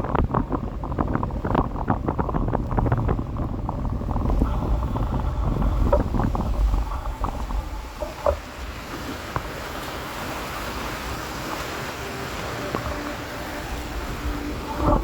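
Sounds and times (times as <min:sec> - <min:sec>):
small knocks and rattles: 0:00.0 - 0:09.8
wind buffeting microphone: 0:00.0 - 0:15.0.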